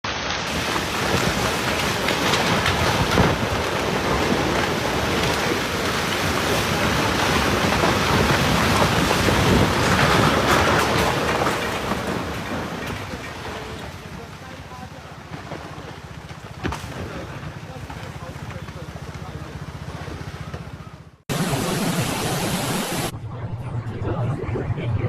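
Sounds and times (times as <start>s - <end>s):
wind buffeting microphone: 1.1s - 13.4s
rushing water: 21.3s - 23.1s.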